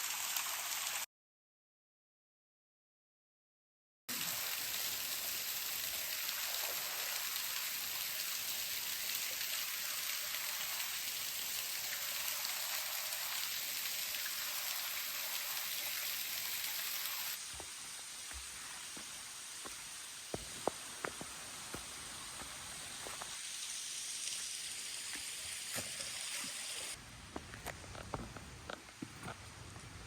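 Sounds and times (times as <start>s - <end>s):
falling water hiss: 0.0s - 1.0s, 4.1s - 27.0s.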